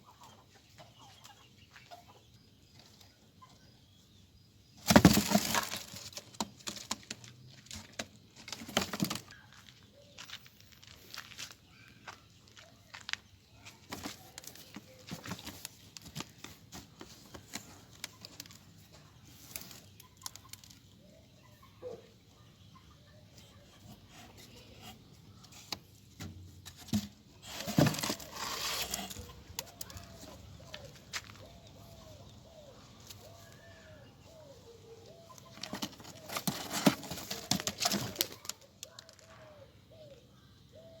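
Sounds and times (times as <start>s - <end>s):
rustling and scratching: 4.8s - 11.6s, 12.4s - 21.0s, 23.4s - 32.1s, 35.1s - 39.4s
rustling and knocking: 25.5s - 31.4s, 35.5s - 38.5s.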